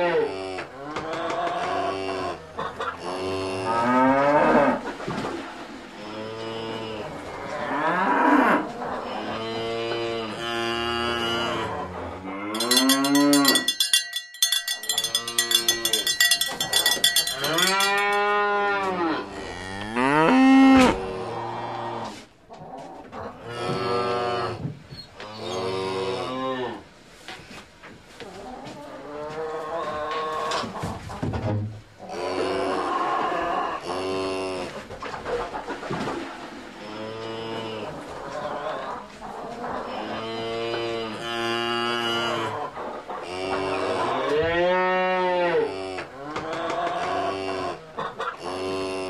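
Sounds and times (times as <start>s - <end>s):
cattle mooing: 3.0s - 4.8s, 6.0s - 13.8s, 14.9s - 22.2s
shrill rattling high-pitched sound: 12.6s - 18.4s.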